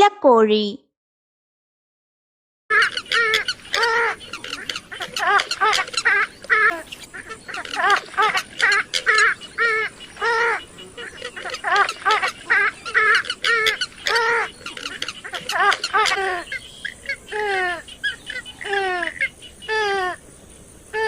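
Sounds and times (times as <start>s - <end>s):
bird giving harsh nasal calls: 2.7s - 20.2s.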